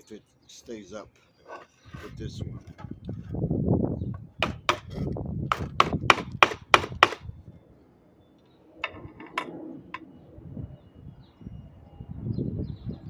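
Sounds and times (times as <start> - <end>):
hammer strikes: 4.4 - 7.2
handling noise: 8.8 - 10.0.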